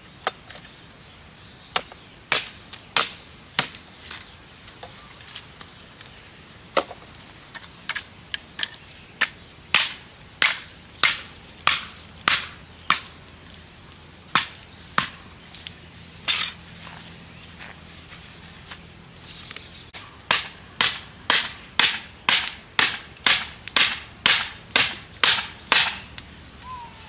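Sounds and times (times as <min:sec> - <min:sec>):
chopping knocks: 0:09.8 - 0:13.2, 0:14.3 - 0:15.2, 0:20.3 - 0:26.3.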